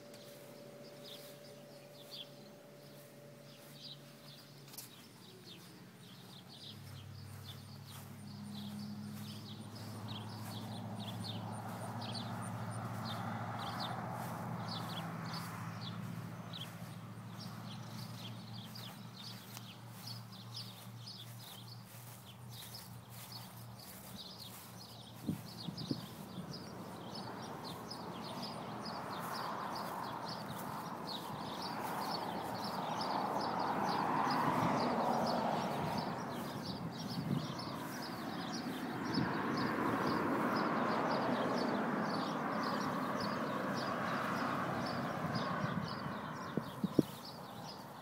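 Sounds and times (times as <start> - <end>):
low steady hum: 0.0 - 12.8
small birds chirping: 0.0 - 48.0.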